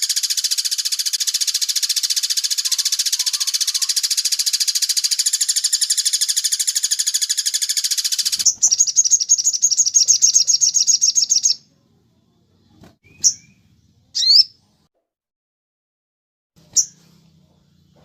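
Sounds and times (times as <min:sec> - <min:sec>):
bird rattling trill: 0:00.0 - 0:11.6
bird chirps: 0:00.0 - 0:11.7, 0:13.0 - 0:14.6, 0:16.6 - 0:17.1.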